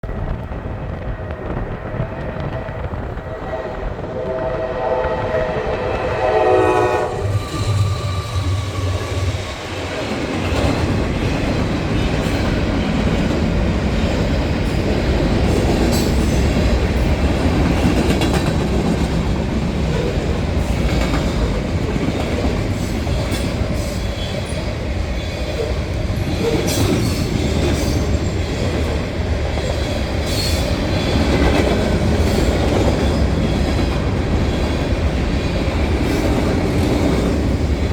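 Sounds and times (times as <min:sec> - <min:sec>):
diesel locomotive engine drone: 0:00.0 - 0:26.7
locomotive horn: 0:03.4 - 0:09.0
train wheels clattering: 0:07.1 - 0:37.9.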